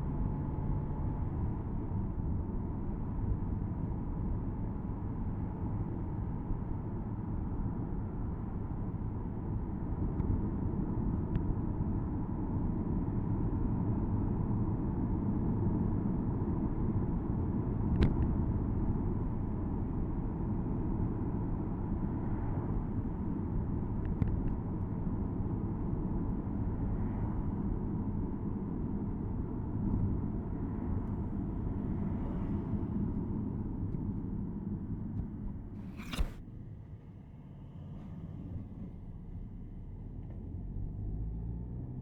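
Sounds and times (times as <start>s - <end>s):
car engine rumble: 0.0s - 42.0s
road noise: 18.8s - 41.0s
sharp click: 35.8s - 36.4s.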